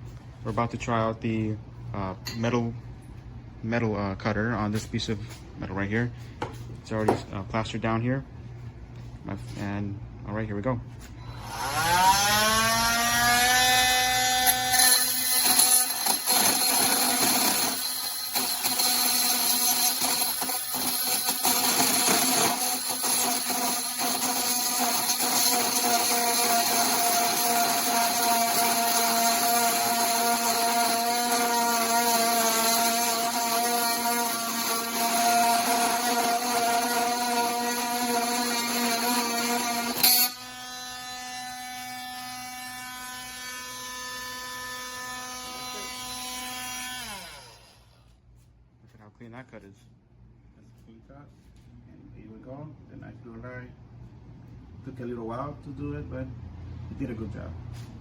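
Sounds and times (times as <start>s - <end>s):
multi-tool motor whine: 11.2s - 48.1s
rasping metal cutting: 11.3s - 48.0s.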